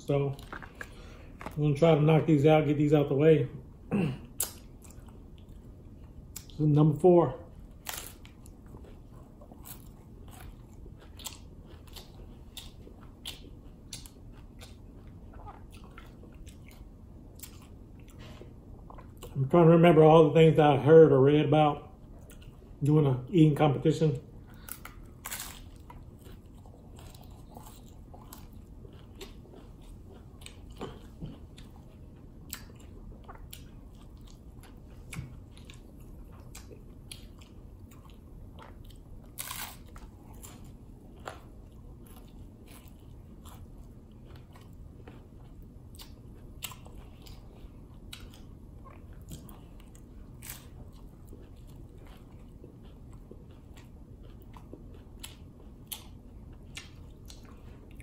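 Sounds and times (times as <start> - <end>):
crunching taco shell: 7.8 - 14.8, 24.6 - 31.0, 32.5 - 45.2, 49.2 - 56.1.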